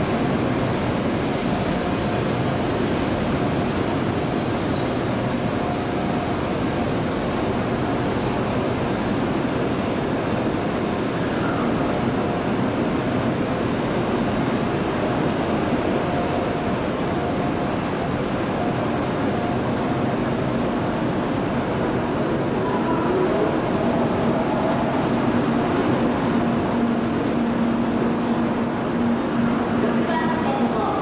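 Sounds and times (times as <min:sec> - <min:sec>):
train wheels rumbling: 0:15.9 - 0:30.8.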